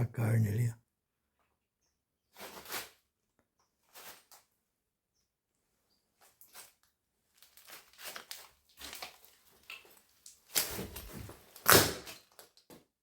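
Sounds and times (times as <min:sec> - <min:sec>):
footsteps crunching over debris: 0:06.2 - 0:12.8.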